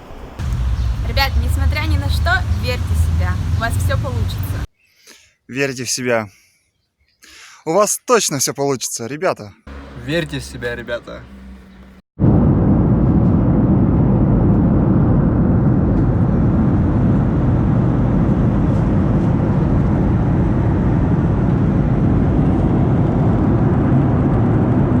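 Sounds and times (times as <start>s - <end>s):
low rumbling noise: 0.4s - 4.7s, 9.7s - 25.0s.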